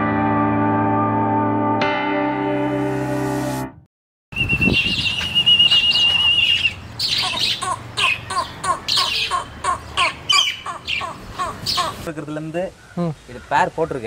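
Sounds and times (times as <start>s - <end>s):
bird warbling whistle: 4.3s - 8.2s
short repeated bird calls: 4.8s - 12.1s.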